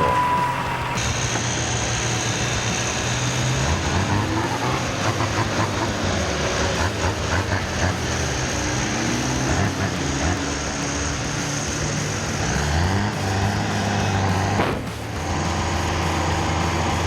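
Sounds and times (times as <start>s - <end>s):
chainsaw engine running: 0.0s - 17.0s
short cracks: 13.1s - 16.9s.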